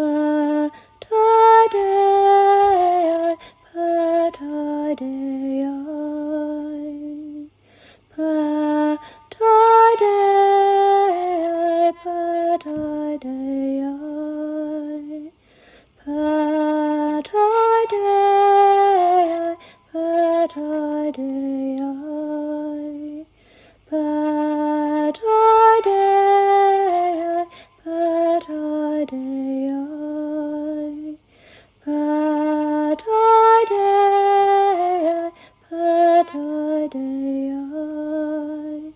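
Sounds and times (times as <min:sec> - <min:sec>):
woman singing a slow chant: 0:00.0 - 0:38.9.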